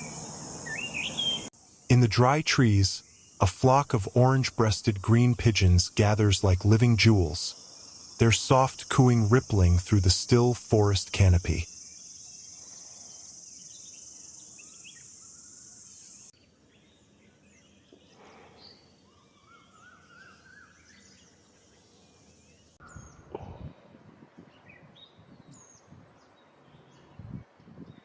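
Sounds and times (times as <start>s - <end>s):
birds chirping and calling: 0.0s - 1.5s, 12.5s - 23.6s
whistled bird notes: 0.0s - 1.5s, 12.6s - 23.3s
high-pitched insect trill: 0.0s - 16.4s.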